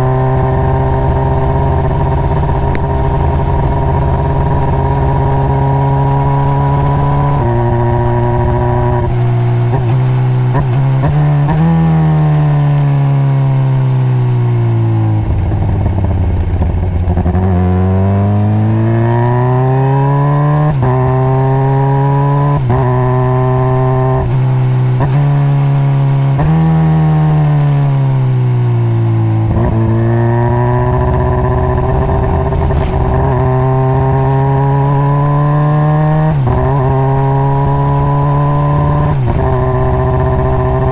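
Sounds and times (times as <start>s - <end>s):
motorcycle engine shifting gears: 0.0s - 40.9s.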